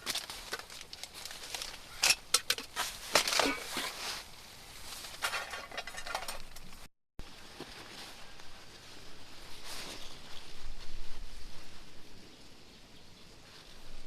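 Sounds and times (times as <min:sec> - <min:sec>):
sharp handling clicks and knocks: 0:00.0 - 0:04.0, 0:05.1 - 0:06.9
rustling: 0:00.0 - 0:12.3.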